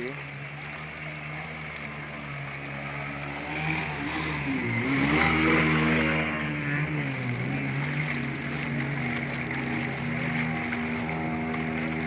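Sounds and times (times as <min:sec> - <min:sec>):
rushing floodwater: 0:00.0 - 0:12.0
motorcycle engine revving: 0:02.8 - 0:12.0.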